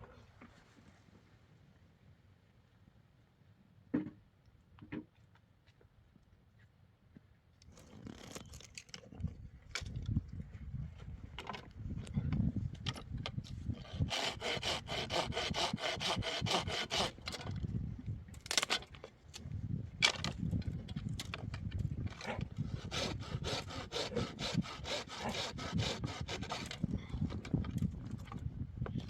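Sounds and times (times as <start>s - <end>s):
hand saw cutting wood: 13.8s - 17.5s, 22.2s - 27.4s.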